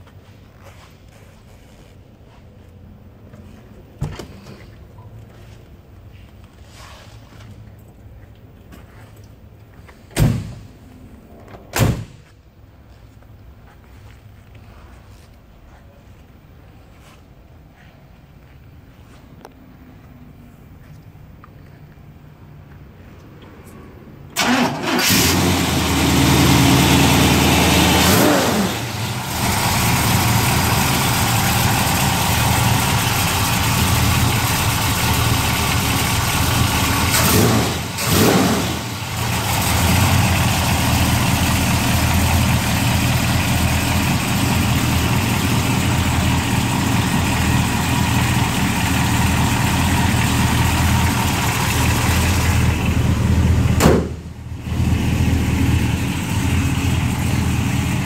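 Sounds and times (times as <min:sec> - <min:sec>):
car engine starting: 0:24.3 - 0:58.0
car engine revving and idling: 0:24.4 - 0:58.0.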